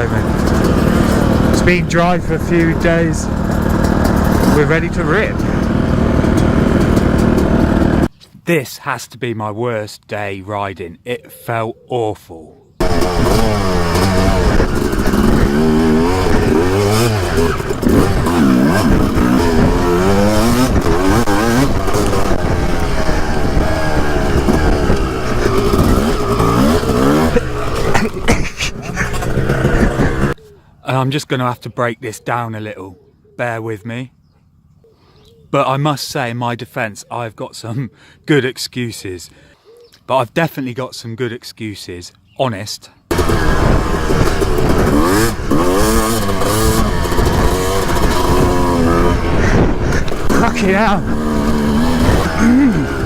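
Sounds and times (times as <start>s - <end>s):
wind buffeting: 0.0s - 8.1s, 12.8s - 30.4s, 43.1s - 53.0s
dirt bike engine revving: 0.0s - 8.2s, 12.8s - 30.4s, 43.1s - 53.0s.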